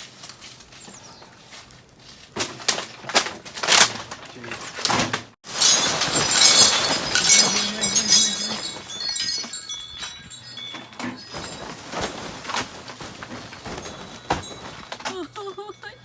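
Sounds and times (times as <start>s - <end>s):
ice and snow cracking: 5.5s - 16.0s
ice pieces tinkling: 5.5s - 16.0s.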